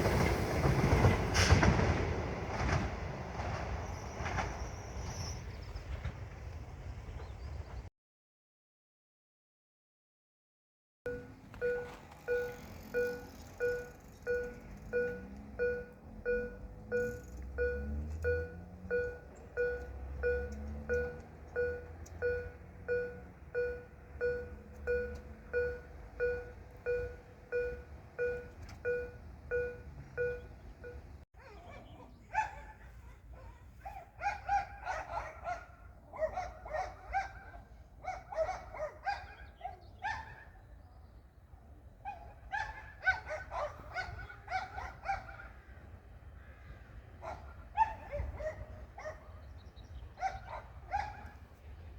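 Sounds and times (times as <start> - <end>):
level-crossing warning bell: 11.1 - 31.2.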